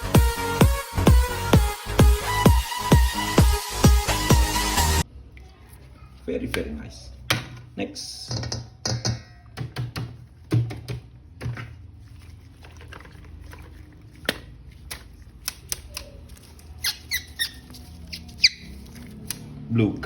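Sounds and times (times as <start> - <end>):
plastic squeaks: 15.8 - 19.3.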